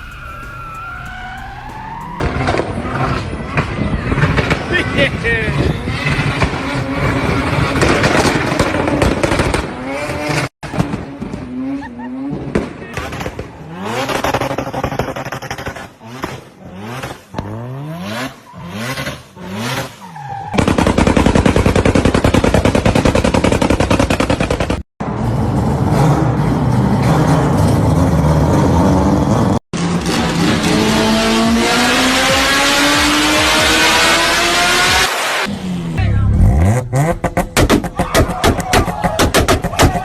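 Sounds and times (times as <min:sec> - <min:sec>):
rotary engine revving: 0:22.6 - 0:40.0.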